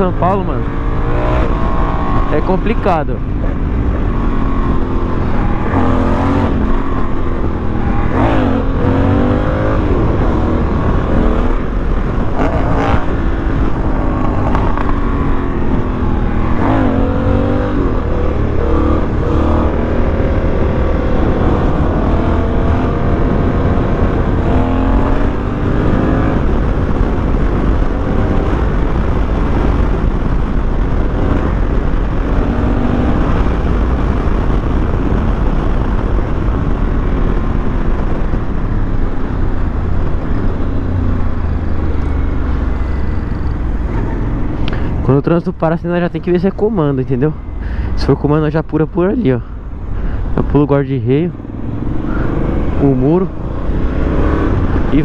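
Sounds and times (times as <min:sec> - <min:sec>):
motorcycle engine accelerating: 0:00.0 - 0:55.0
wind rush on microphone: 0:00.0 - 0:55.0.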